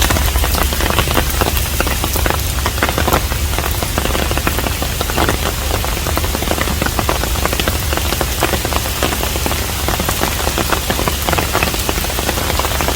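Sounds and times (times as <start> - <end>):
low rumble: 0.0 - 10.3
rain hissing: 0.0 - 12.9
raindrops tapping: 0.0 - 12.9.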